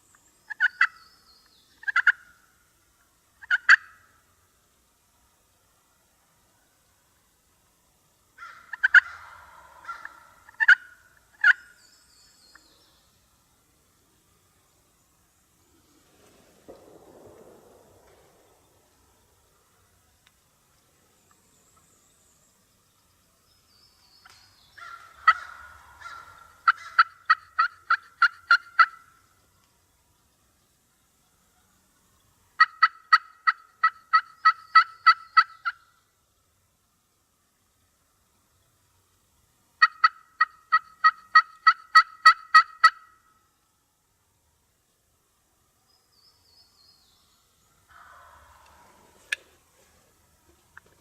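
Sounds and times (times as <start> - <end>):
wild turkey gobbling: 0.5 - 1.0, 1.8 - 4.3, 8.4 - 11.8, 24.2 - 29.3, 32.6 - 36.0, 39.8 - 43.3, 47.9 - 49.8.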